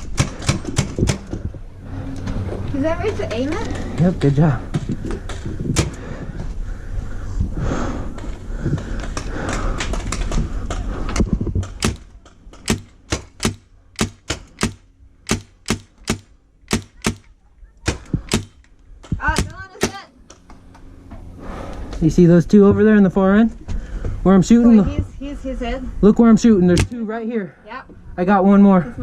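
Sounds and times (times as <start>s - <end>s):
low rumbling noise: 0.0s - 27.0s
paintball marker shots: 11.6s - 18.6s.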